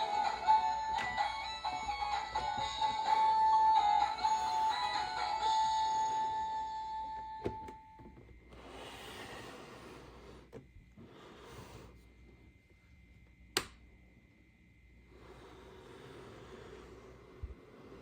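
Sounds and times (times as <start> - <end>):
musical jingle: 0.0 - 8.0.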